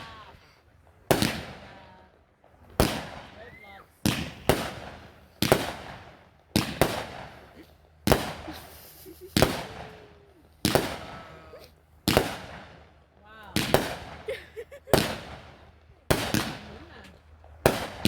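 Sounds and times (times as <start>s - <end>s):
firework cake bangs: 1.1s - 1.8s, 2.7s - 3.4s, 4.0s - 10.0s, 10.6s - 11.4s, 12.1s - 12.8s, 13.5s - 17.0s, 17.6s - 18.0s.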